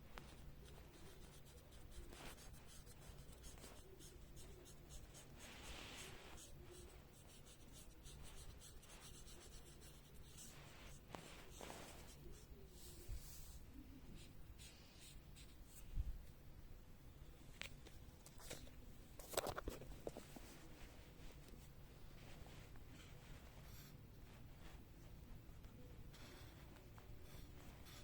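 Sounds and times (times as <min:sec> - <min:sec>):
colouring tool scratching on paper: 0:00.6 - 0:13.6, 0:26.2 - 0:28.0.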